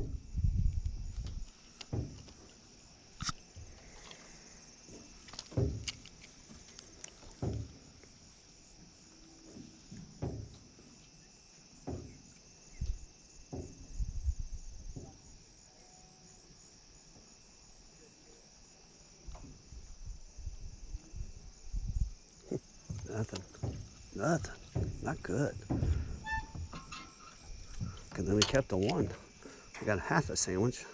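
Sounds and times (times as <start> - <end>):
low thumps and knocks: 0.0 - 2.4, 5.5 - 6.0, 7.3 - 7.9, 9.5 - 10.7, 11.8 - 12.2, 12.8 - 15.2, 21.8 - 29.2
high-pitched insect chorus: 0.0 - 30.9.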